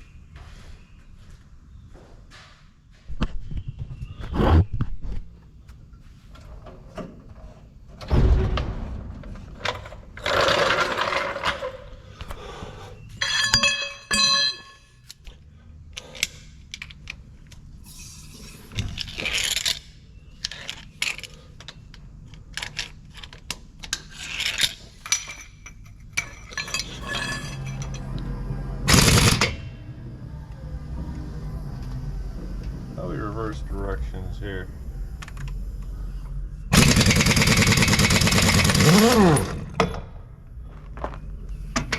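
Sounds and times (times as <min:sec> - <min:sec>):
metal tools clinking and scraping: 0:09.6 - 0:15.2, 0:22.5 - 0:29.5
ringing metal strike: 0:13.2 - 0:15.0.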